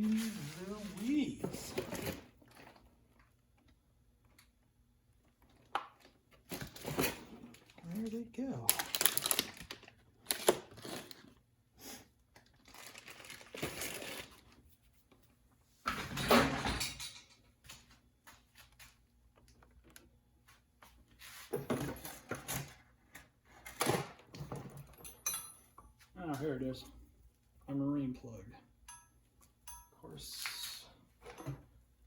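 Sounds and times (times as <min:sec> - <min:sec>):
packaging rustling: 0:08.6 - 0:11.3, 0:12.4 - 0:14.6.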